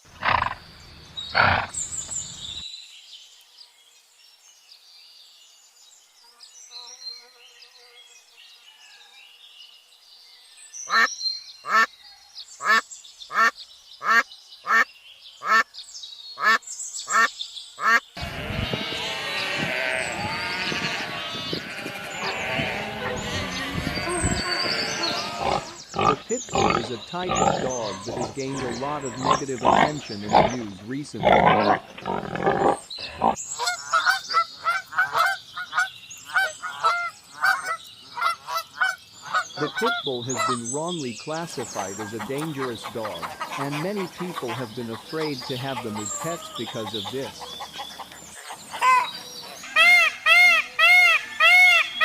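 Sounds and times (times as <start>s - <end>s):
many animals calling: 0.0s - 0.6s, 1.3s - 2.6s, 16.4s - 52.0s
duck quacking: 16.4s - 48.0s.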